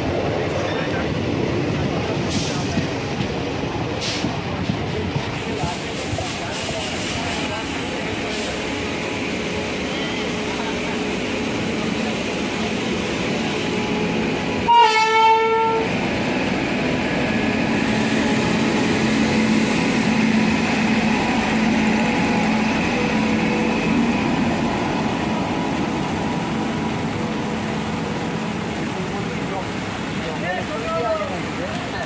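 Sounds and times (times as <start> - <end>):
train wheels rumbling on rails: 0.0 - 32.0
locomotive horn blast: 14.6 - 15.9.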